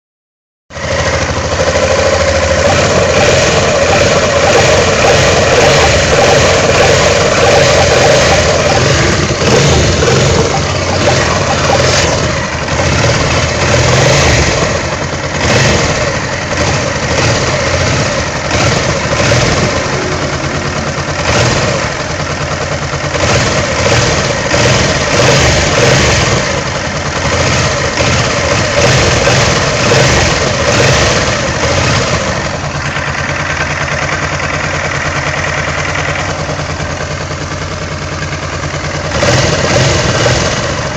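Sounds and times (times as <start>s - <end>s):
motorcycle engine running: 0.7s - 40.9s
strange engine noise: 0.7s - 40.9s
mid-pitched drone: 1.9s - 14.9s, 17.4s - 24.2s.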